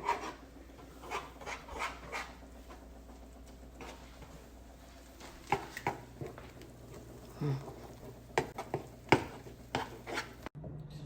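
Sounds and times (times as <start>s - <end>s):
soft rubbing and scraping: 0.0s - 10.5s
low steady hum: 0.0s - 11.0s.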